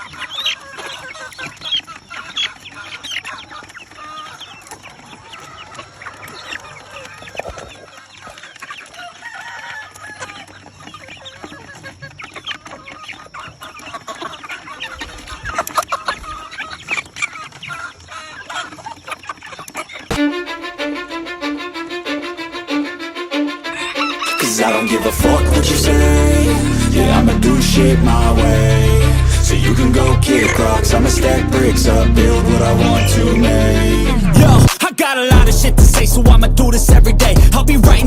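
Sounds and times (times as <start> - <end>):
chickens clucking and calling: 0.0 - 34.9
rooster crowing: 9.0 - 10.5, 22.6 - 27.1.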